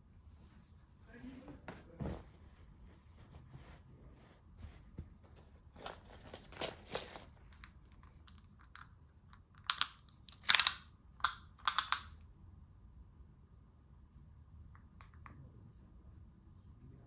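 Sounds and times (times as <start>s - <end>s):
yarn and fabric rustling: 0.3s - 7.6s
knitting needles clicking: 9.6s - 12.1s.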